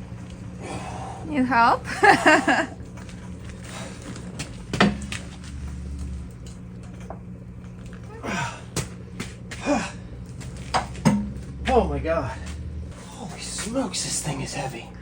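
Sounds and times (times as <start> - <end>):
steady low hum: 0.0 - 15.0
person grunting and breathing: 0.6 - 1.3, 8.1 - 8.8, 9.6 - 10.2.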